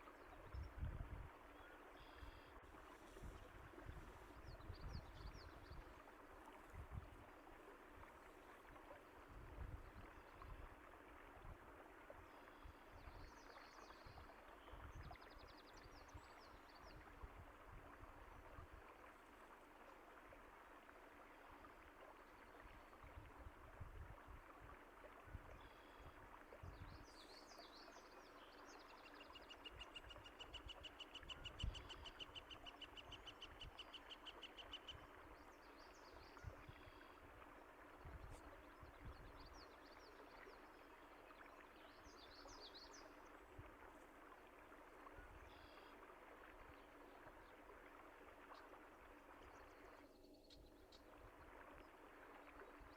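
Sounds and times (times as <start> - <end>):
running water: 0.0 - 52.9.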